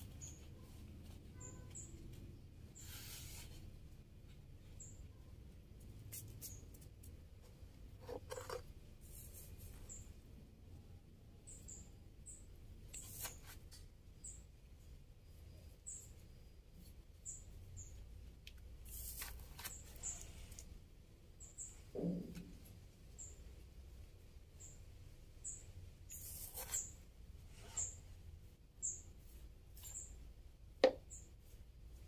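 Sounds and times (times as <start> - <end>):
small bird chirping: 0.0 - 3.5, 4.6 - 5.4, 6.1 - 10.2, 11.4 - 14.6, 15.3 - 18.2, 18.9 - 20.6, 21.4 - 21.9, 23.1 - 23.5, 24.6 - 28.2, 28.8 - 30.3, 31.0 - 31.4.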